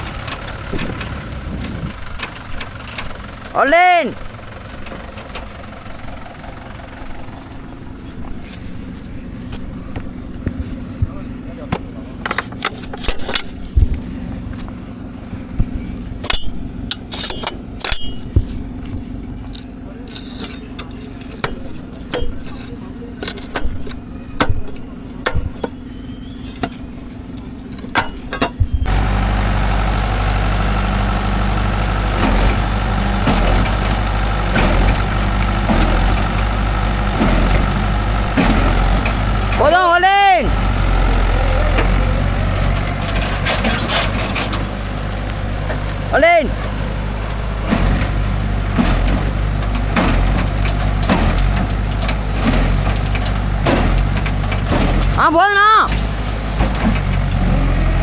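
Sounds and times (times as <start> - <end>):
diesel engine running: 0.0 - 58.0
sharp knocks and clicks: 42.6 - 55.2.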